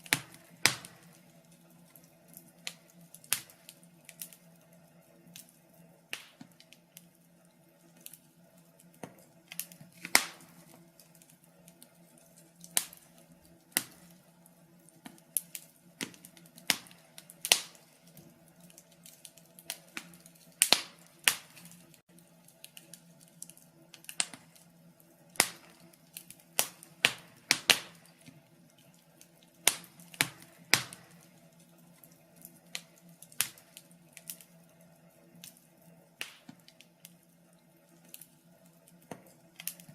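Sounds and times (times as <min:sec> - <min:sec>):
sharp pops of fire: 0:00.0 - 0:04.5, 0:06.1 - 0:07.1, 0:08.8 - 0:11.9, 0:12.6 - 0:14.2, 0:14.9 - 0:22.0, 0:22.6 - 0:24.7, 0:25.3 - 0:28.3, 0:29.2 - 0:31.5, 0:32.4 - 0:34.5, 0:36.2 - 0:37.2
wood fire crackling: 0:00.0 - 0:39.9.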